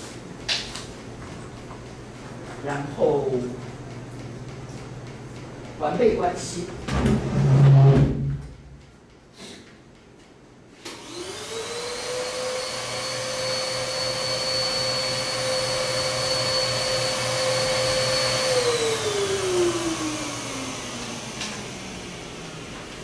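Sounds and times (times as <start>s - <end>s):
electric motor whining: 10.9s - 22.4s.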